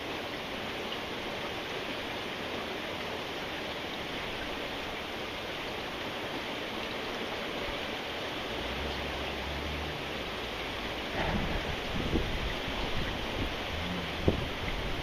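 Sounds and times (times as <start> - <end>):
steady rain falling: 0.0 - 15.0
low uneven rumble: 8.3 - 15.0
low hum: 8.6 - 15.0.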